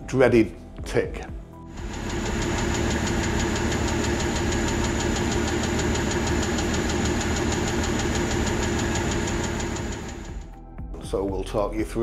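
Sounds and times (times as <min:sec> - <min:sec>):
car engine running: 0:01.7 - 0:10.5
rapid engine ticking: 0:01.7 - 0:10.5.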